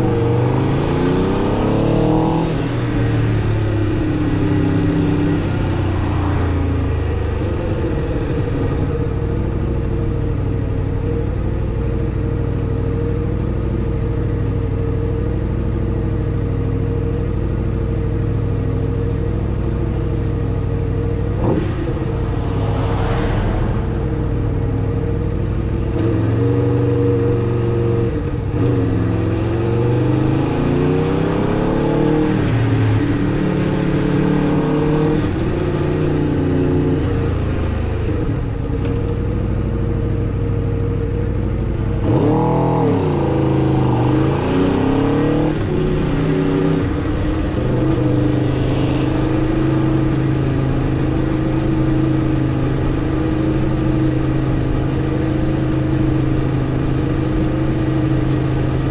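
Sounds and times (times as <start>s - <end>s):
motorcycle engine revving: 18.6s - 38.1s.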